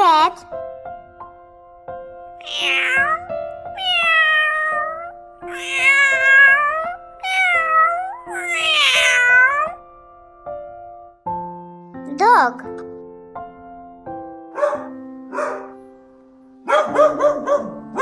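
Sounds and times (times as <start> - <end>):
soft background music: 0.0 - 18.0
cat meowing: 2.4 - 9.8.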